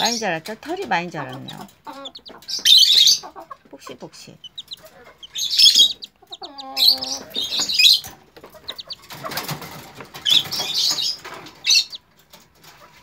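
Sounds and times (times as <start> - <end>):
chick wings flapping: 6.6 - 13.0.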